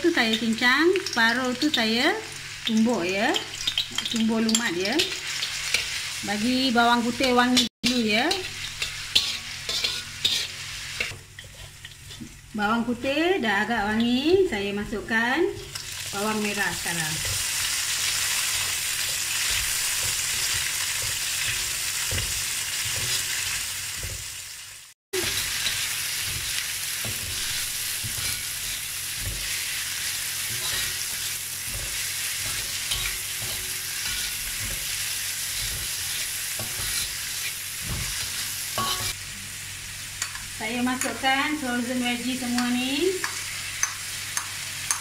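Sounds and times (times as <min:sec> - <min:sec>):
food sizzling in hot oil: 0:00.0 - 0:45.0
metal spatula scraping wok: 0:07.0 - 0:12.4, 0:15.6 - 0:24.4, 0:25.2 - 0:39.2.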